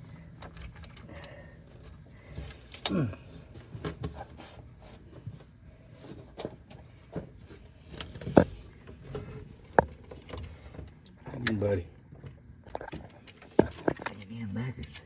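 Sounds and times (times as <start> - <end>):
hands clicking cable linkage: 0.4 - 3.2.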